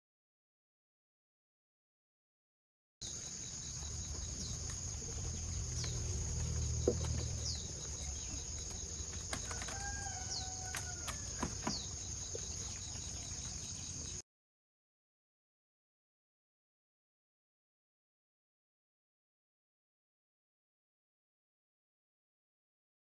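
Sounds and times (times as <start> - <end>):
falling bird chirps: 3.0 - 14.2
high insect buzz: 3.0 - 14.2
faint low rumble: 3.3 - 9.5
rooster crowing: 9.3 - 11.8.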